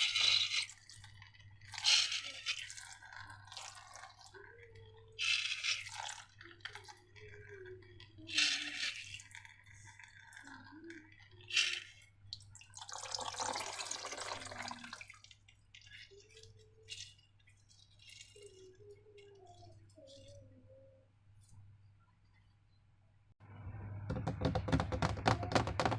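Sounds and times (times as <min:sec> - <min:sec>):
slime squelching: 0:00.0 - 0:13.0, 0:14.4 - 0:21.7.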